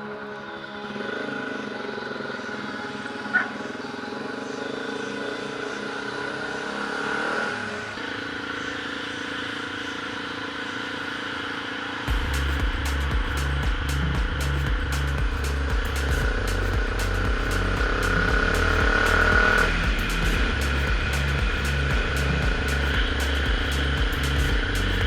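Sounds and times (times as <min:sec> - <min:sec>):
motorcycle engine running: 0:12.1 - 0:25.0
music with drum beat: 0:12.1 - 0:25.0.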